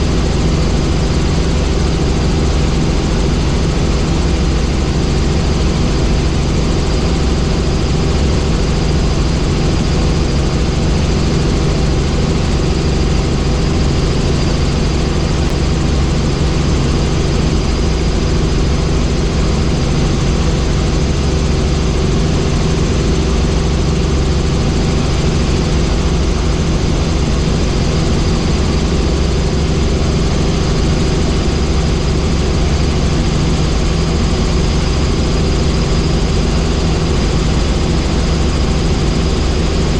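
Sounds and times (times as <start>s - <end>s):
helicopter engine and rotor noise: 0.0s - 39.9s.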